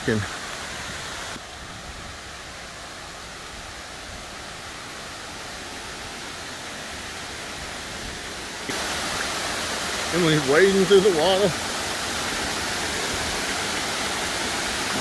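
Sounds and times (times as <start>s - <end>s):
small waterfall splashing: 0.0s - 15.0s.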